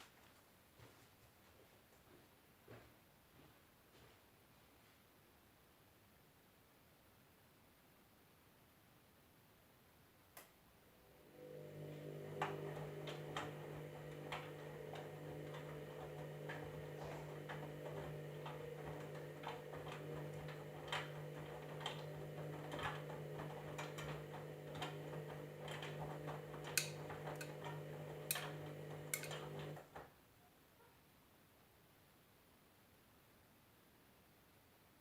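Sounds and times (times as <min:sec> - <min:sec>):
washing machine motor hum: 0:11.0 - 0:30.0
clicks and taps: 0:14.2 - 0:29.8.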